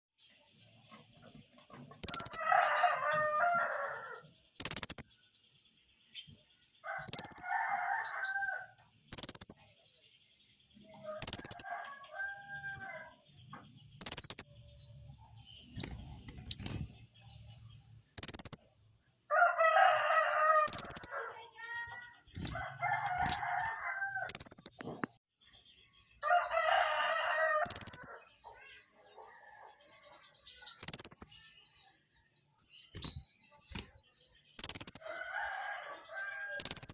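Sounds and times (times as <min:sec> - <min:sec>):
small bird high chirps: 0:00.2 - 0:36.9
rooster crowing: 0:02.2 - 0:04.2, 0:06.9 - 0:08.8, 0:11.1 - 0:13.1, 0:19.3 - 0:21.3, 0:22.5 - 0:24.3, 0:26.2 - 0:28.2, 0:35.0 - 0:36.8.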